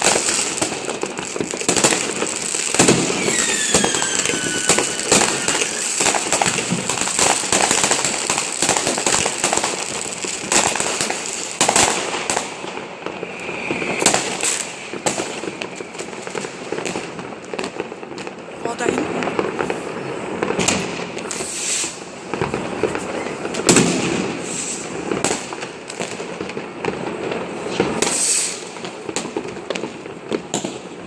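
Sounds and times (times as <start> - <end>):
fireworks banging and crackling: 0.0 - 31.0
falling firework whistle: 1.4 - 7.8, 13.0 - 16.4, 19.9 - 22.0, 23.1 - 25.1, 27.7 - 28.7.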